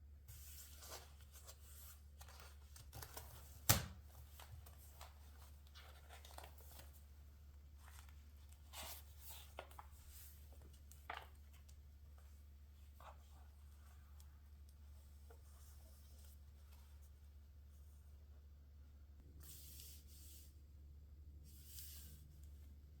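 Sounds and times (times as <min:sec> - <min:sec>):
faint low hum: 0:00.0 - 0:23.0
paper rustling: 0:00.3 - 0:12.2.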